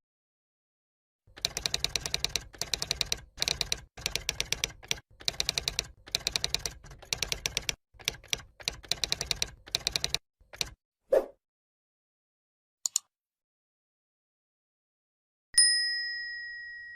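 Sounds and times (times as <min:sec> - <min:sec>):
keyboard typing clicks: 0:01.3 - 0:10.8, 0:12.9 - 0:13.1.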